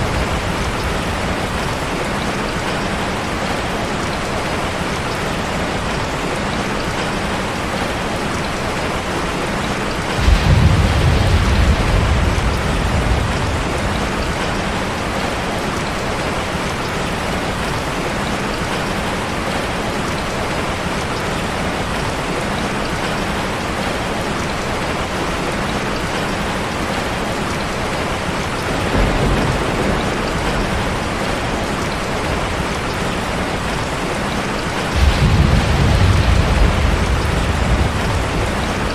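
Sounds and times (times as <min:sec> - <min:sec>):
thunder rumbling: 0:00.0 - 0:03.0, 0:10.1 - 0:16.6, 0:28.6 - 0:38.9
steady rain: 0:00.0 - 0:38.9.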